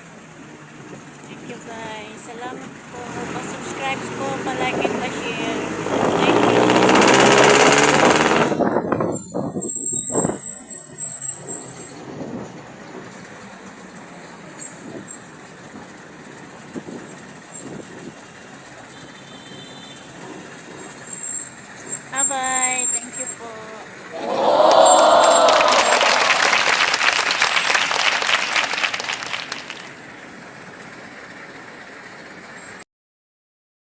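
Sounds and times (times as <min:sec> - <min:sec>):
road traffic passing: 0:00.0 - 0:09.4, 0:10.3 - 0:32.8.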